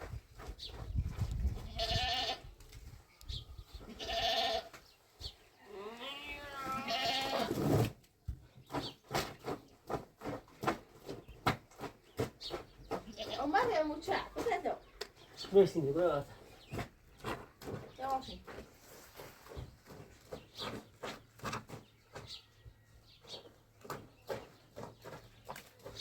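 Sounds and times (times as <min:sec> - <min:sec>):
livestock bleating: 0:01.7 - 0:02.4, 0:03.9 - 0:04.7, 0:05.6 - 0:07.5.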